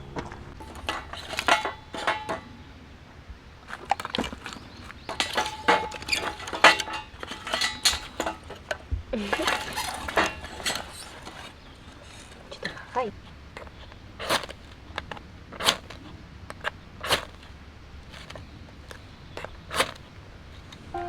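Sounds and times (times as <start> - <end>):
metal cookware clinking: 0.0 - 2.6, 4.1 - 11.6.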